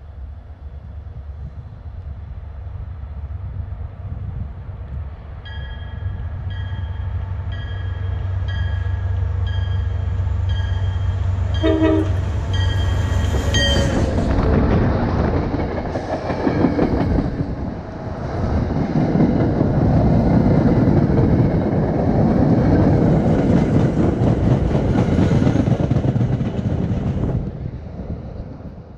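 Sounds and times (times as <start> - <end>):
train engine hum: 0.0 - 28.9
train bell ringing: 5.4 - 14.2
train horn blast: 11.5 - 14.2.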